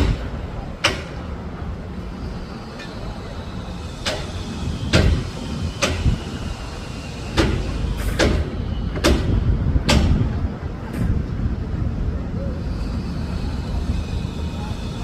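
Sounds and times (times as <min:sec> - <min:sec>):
sharp knocks: 0:00.0 - 0:01.2, 0:07.4 - 0:10.3
steady low rumble: 0:03.4 - 0:15.0.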